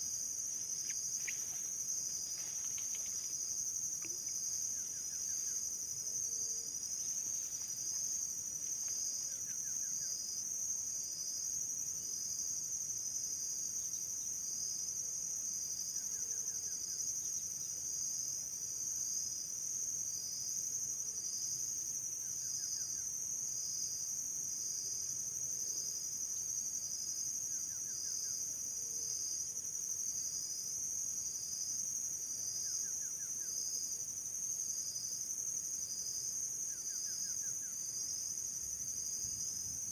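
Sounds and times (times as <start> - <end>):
insect chirping in pulses: 0.0 - 11.0
insect high-pitched buzz: 0.0 - 14.9, 20.1 - 39.9.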